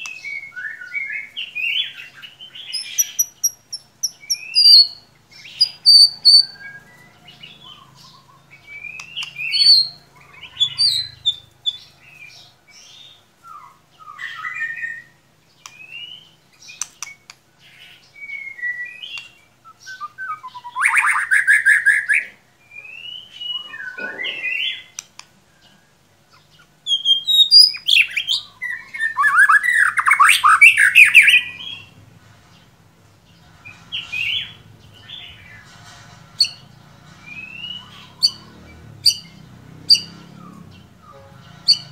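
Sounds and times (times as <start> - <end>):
harsh scratchy bird chattering: 2.7 - 6.6, 23.6 - 25.1, 33.9 - 36.7, 37.8 - 38.4, 41.1 - 41.9
bird singing whistles: 2.7 - 7.1, 7.7 - 11.8, 18.2 - 25.0, 26.9 - 31.9, 37.3 - 38.4.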